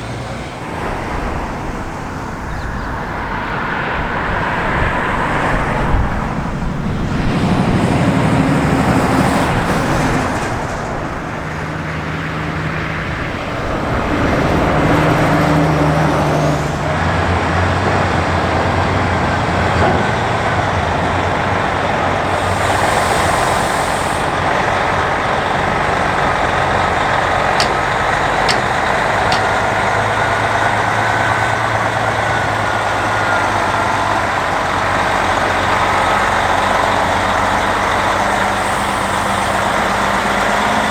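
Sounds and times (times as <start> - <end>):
truck diesel engine running: 0.0 - 40.9
air hiss: 22.2 - 24.6.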